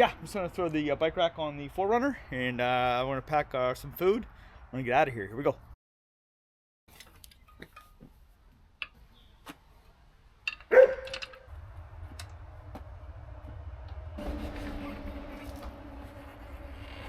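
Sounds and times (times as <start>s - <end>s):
dog barking: 10.7s - 11.2s
steady low hum: 11.5s - 17.0s.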